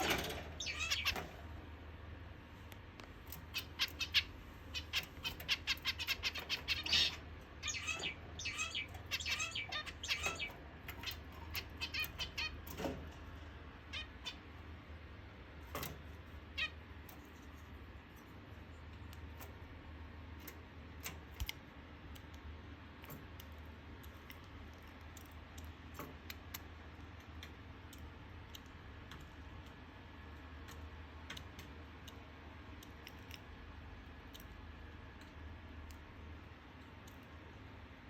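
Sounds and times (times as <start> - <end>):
low steady hum: 0.0 - 38.0
light clicks and ticks: 20.4 - 36.0.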